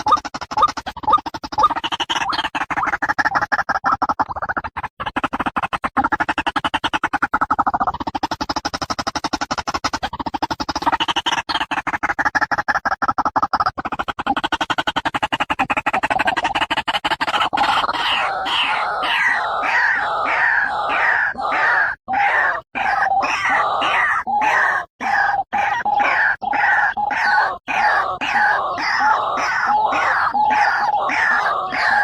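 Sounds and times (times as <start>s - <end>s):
waterhen harsh repeated calls: 0.0s - 6.3s, 14.6s - 32.0s.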